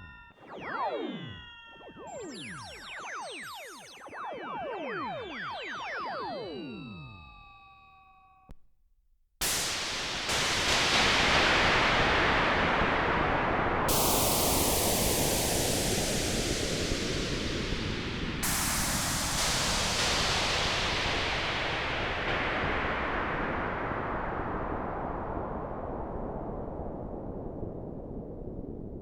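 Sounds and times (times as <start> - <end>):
synthesizer hiss: 9.5 - 24.0.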